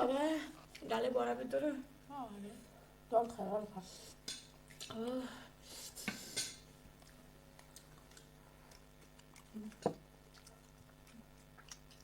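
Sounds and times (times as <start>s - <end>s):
person chewing: 6.3s - 12.0s.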